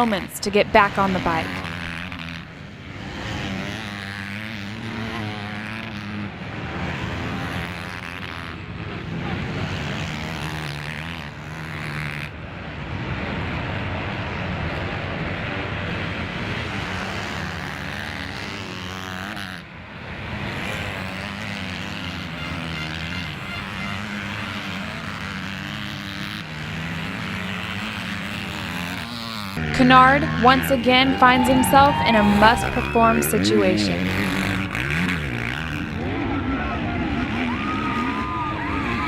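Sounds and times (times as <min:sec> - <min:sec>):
motocross bikes racing: 0:00.0 - 0:39.0.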